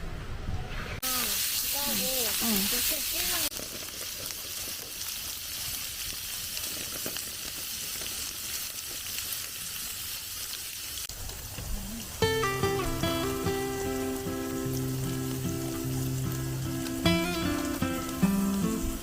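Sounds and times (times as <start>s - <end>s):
food sizzling in a pan: 1.0s - 19.0s
background music: 12.2s - 19.0s.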